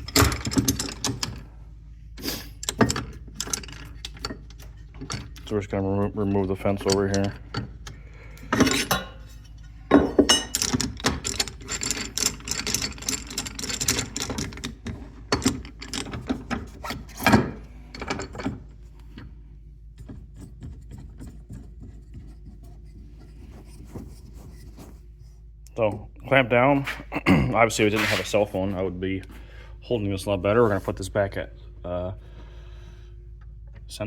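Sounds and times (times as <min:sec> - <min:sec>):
miter saw parts clicking and scraping: 0:02.5 - 0:09.8, 0:10.4 - 0:19.4.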